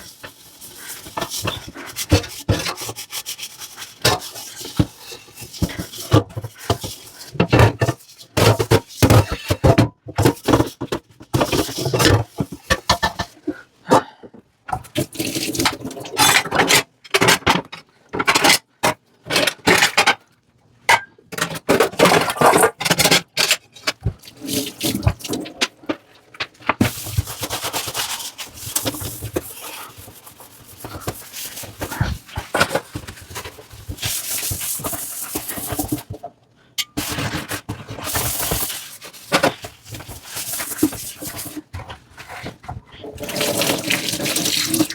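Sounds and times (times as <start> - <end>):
dishes scrubbing and scraping: 0.0 - 20.2, 20.9 - 44.9
running water: 43.2 - 44.9.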